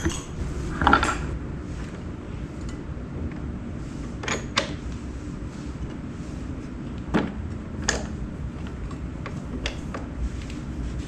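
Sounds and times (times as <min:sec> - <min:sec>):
tools clicking and knocking: 0:00.0 - 0:00.4.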